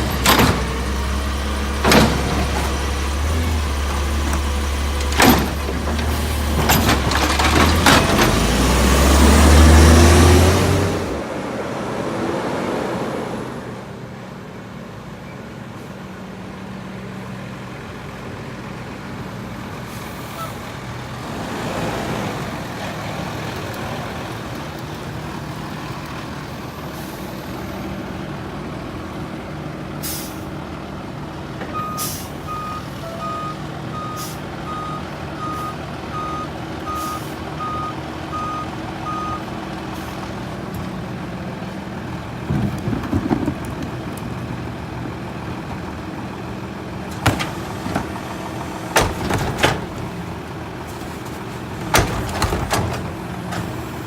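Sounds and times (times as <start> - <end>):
truck engine running: 0.0 - 11.5, 14.1 - 54.0
air brake hisses: 30.0 - 30.5, 32.0 - 32.4
reversing beeper: 31.8 - 39.5.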